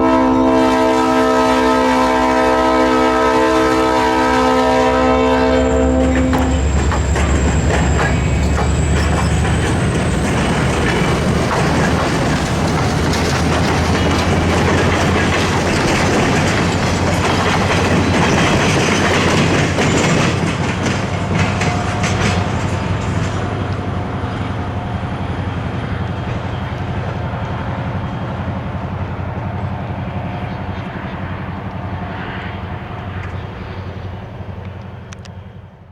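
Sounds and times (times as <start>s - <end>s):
diesel train rumbling past: 0.0s - 35.9s
wheels clicking over rail joints: 6.0s - 29.0s.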